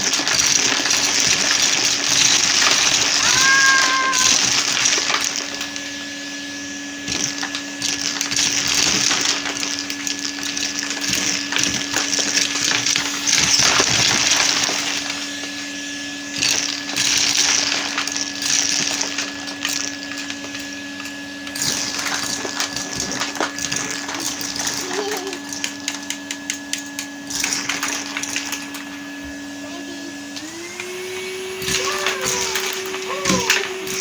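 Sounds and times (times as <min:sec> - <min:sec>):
plastic bricks clattering: 0:00.0 - 0:05.8, 0:07.1 - 0:15.2, 0:16.4 - 0:20.7
vacuum cleaner motor running: 0:00.0 - 0:34.0.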